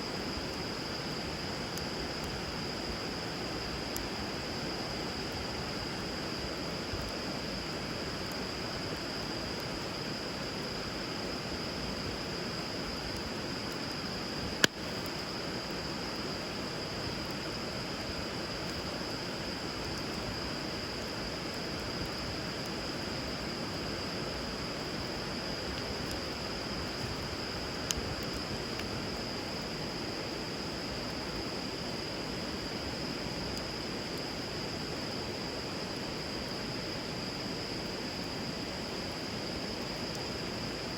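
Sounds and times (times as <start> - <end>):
wood fire popping: 13.0 - 15.4, 24.8 - 29.2.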